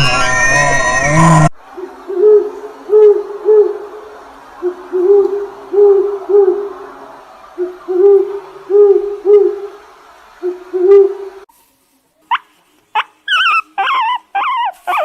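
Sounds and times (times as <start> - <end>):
background hiss: 1.6 - 15.0
owl hooting: 4.6 - 6.7, 7.6 - 9.8, 10.4 - 11.2.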